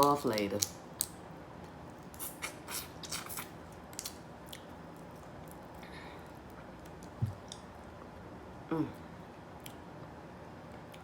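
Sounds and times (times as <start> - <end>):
eating and food-handling crackles: 0.0 - 8.2.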